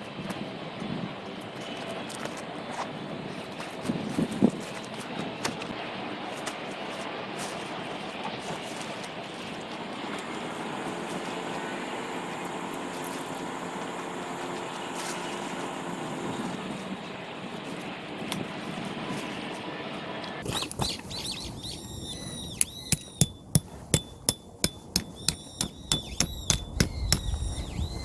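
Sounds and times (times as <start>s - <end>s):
vehicle engine hum: 9.8s - 18.6s
small birds chirping: 20.4s - 28.0s.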